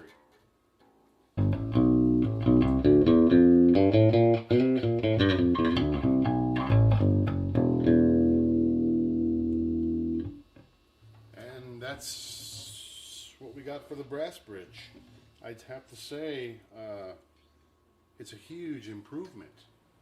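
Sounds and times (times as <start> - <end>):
electric bass plucked notes: 1.4 - 10.5.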